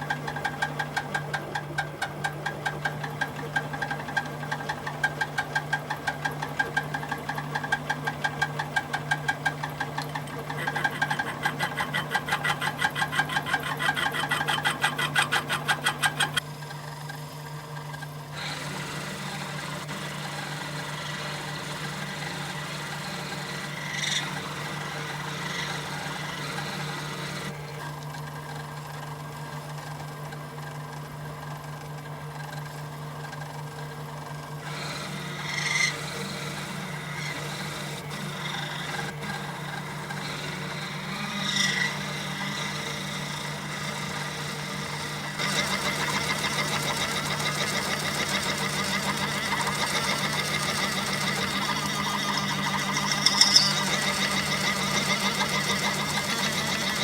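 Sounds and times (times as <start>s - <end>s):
machine tool humming: 2.7s - 16.6s, 34.6s - 57.0s.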